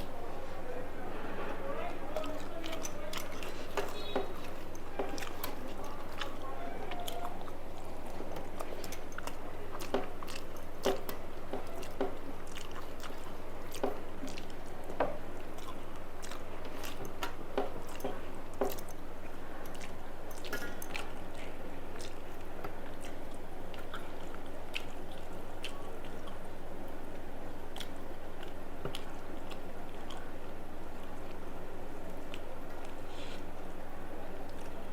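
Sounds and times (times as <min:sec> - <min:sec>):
mouth clicks and crunches: 0:00.0 - 0:34.9
person chewing food: 0:00.0 - 0:34.9
steady low hum: 0:00.0 - 0:34.9.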